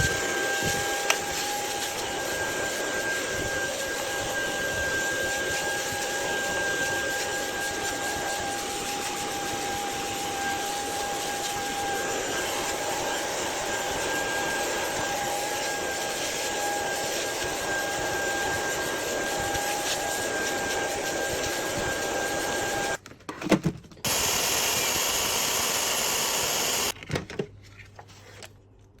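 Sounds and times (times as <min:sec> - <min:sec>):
machine whirring with high whine: 0:24.1 - 0:26.9.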